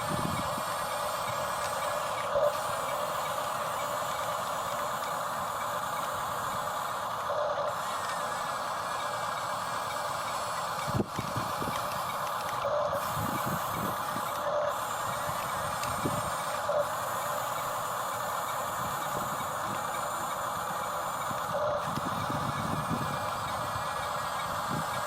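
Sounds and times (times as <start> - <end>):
small electric motors whirring: 0.0 - 25.0.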